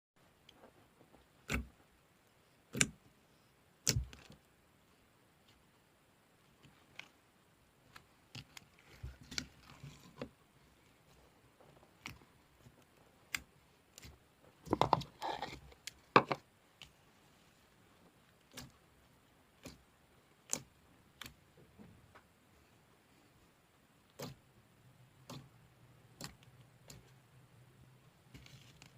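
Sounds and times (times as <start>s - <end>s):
small clicks and pops: 19.5s - 22.4s, 25.2s - 27.2s.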